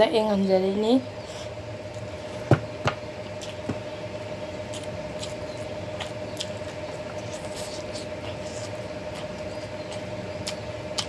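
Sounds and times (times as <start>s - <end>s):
faint steady hum: 0.0s - 11.0s
wet chewing and lip-smacking: 3.3s - 3.7s, 4.6s - 11.0s.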